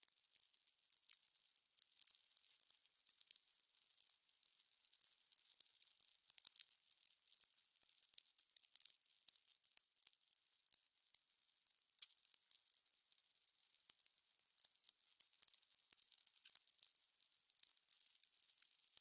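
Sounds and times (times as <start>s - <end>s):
fire crackling: 6.4s - 9.3s.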